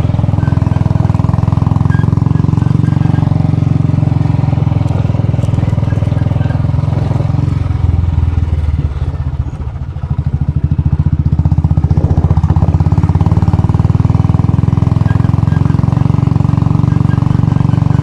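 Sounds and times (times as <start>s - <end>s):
motorcycle engine thumping: 0.0s - 18.0s.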